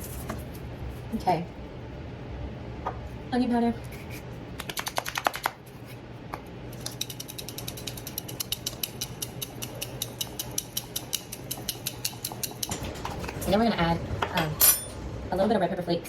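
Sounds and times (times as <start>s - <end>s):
spice jar shaking clicks: 4.6s - 5.6s, 6.8s - 11.8s.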